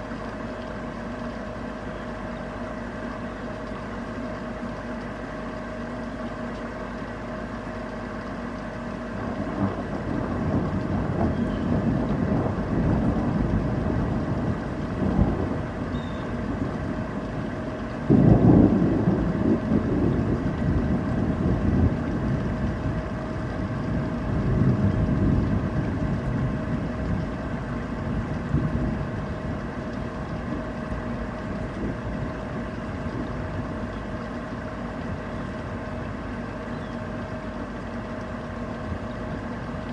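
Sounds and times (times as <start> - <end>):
rain hissing: 8.9 - 39.9
thunder rumbling and clapping: 9.2 - 33.8.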